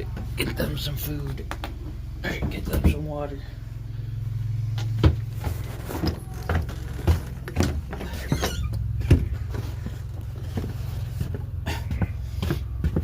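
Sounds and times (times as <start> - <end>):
vehicle engine drone: 0.0 - 13.0
knocks and rattles: 4.9 - 13.0.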